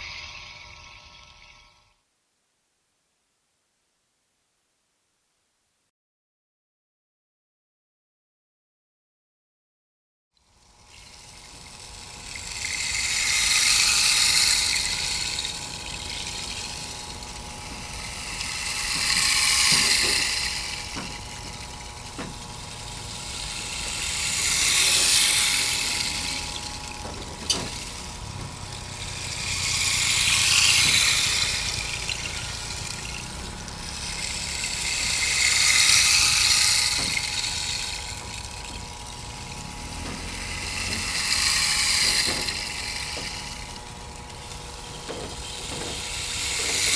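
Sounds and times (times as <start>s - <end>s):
faint steady hum: 10.5s - 46.9s
rushing water-like hiss: 10.6s - 46.9s.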